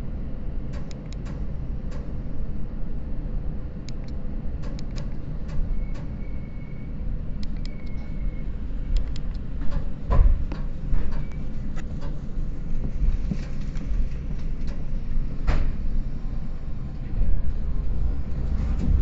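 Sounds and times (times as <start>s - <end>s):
train rumbling: 0.7s - 19.0s
high squeal: 5.7s - 7.0s, 7.7s - 8.5s
heavy thump: 18.6s - 19.0s.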